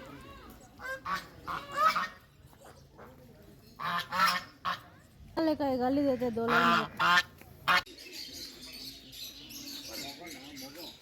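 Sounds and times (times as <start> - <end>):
geese honking: 0.8 - 2.2, 3.8 - 4.9, 6.4 - 7.9.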